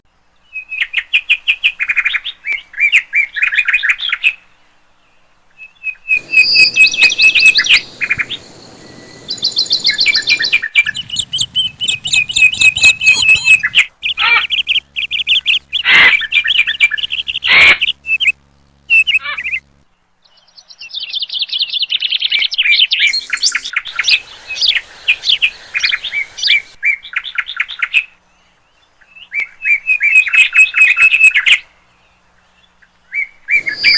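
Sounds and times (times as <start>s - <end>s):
songbirds chirping and trilling: 0.2s - 33.9s
background hiss: 4.5s - 20.6s, 23.3s - 26.8s, 33.6s - 33.9s.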